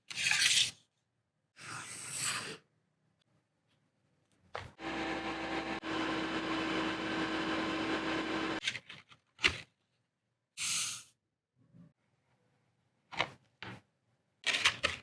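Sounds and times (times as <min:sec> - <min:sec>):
small electric motor humming: 0:04.8 - 0:08.6.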